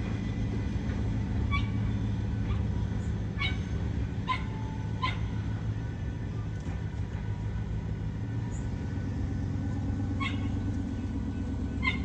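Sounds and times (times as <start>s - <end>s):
freight train rumbling: 0.0s - 12.0s
dog barking: 11.8s - 12.0s.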